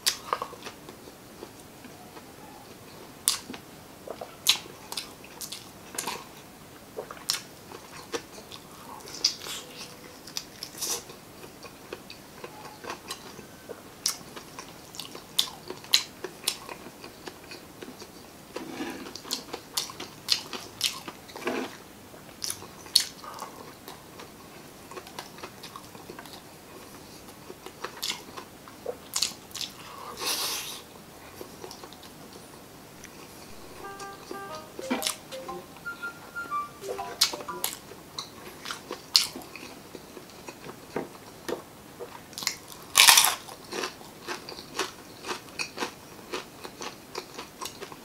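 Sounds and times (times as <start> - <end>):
person chewing food: 42.4 - 48.0.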